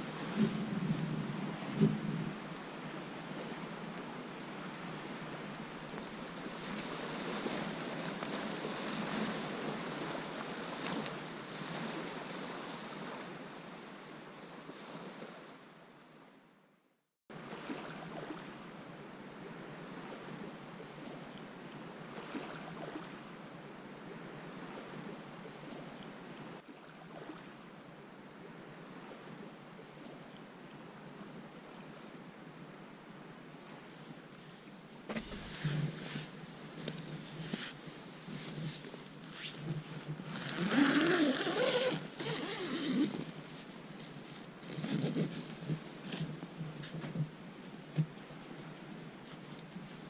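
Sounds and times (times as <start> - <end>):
wind: 0.0 - 50.0
lake water lapping: 2.8 - 13.2, 17.4 - 18.5, 22.1 - 23.2, 26.6 - 27.5, 35.1 - 49.0.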